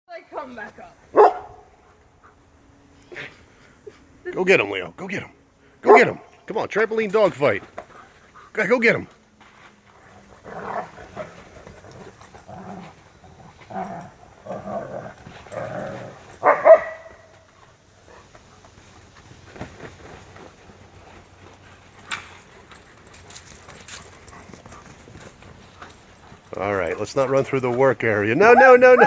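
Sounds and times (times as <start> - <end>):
dogs growling and yipping: 9.9 - 26.9, 28.3 - 29.0
dog yelping: 16.4 - 17.1, 28.4 - 29.0.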